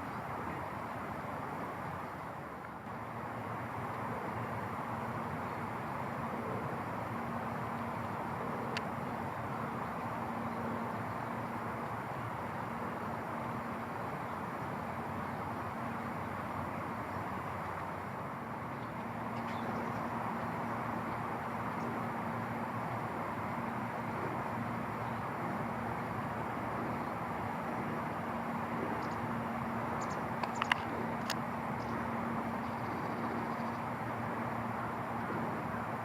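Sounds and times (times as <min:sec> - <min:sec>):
faint low hum: 0:00.0 - 0:36.0
faint clicks: 0:08.7 - 0:08.9, 0:30.0 - 0:31.9.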